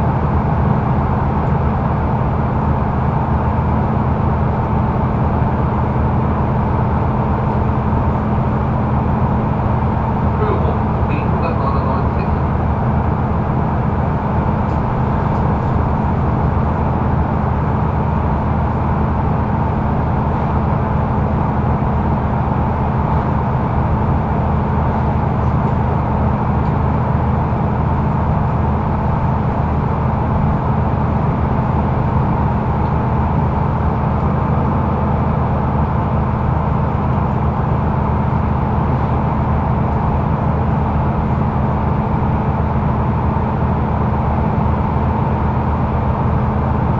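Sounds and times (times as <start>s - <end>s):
bus engine drone: 0.0s - 46.9s
road noise: 0.0s - 46.9s.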